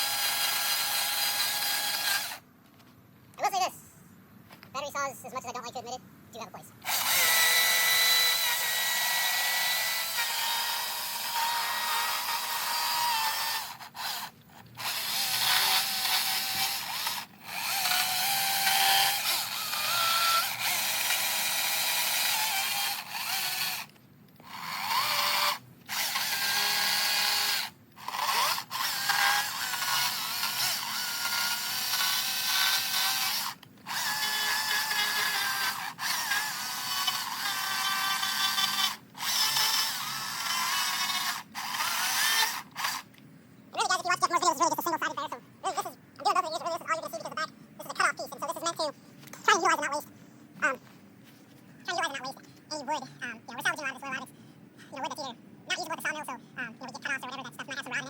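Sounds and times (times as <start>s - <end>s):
electric chainsaw cutting wood: 0.0s - 2.4s, 6.8s - 43.1s.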